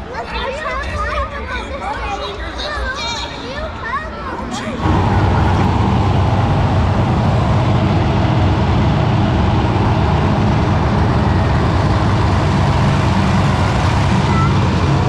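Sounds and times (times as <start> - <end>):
monster truck engine rumbling: 4.6 - 15.0.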